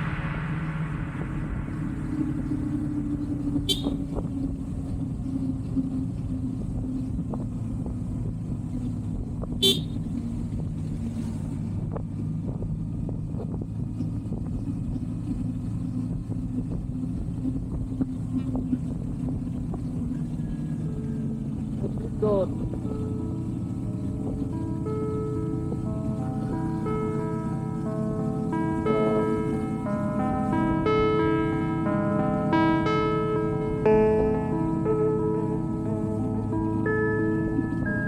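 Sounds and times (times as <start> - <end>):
motorcycle engine running: 0.0 - 38.0
horn toots: 3.6 - 4.2, 9.6 - 10.0.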